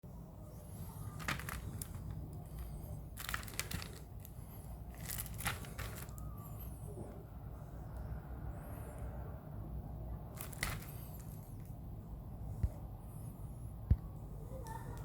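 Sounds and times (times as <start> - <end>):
steady low hum: 0.0 - 15.0
plastic packaging crinkling: 0.6 - 6.6, 10.3 - 11.7.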